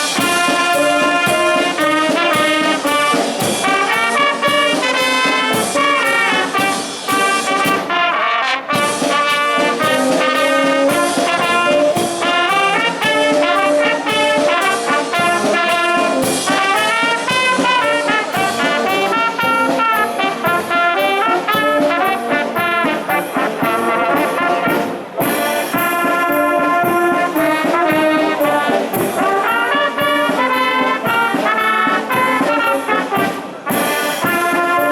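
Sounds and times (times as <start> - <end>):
brass band playing solemn march: 0.0 - 34.9.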